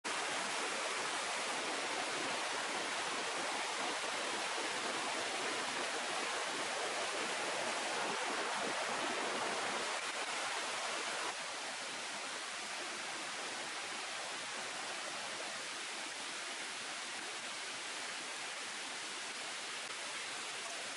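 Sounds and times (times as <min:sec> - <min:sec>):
river water flowing: 0:00.1 - 0:20.9.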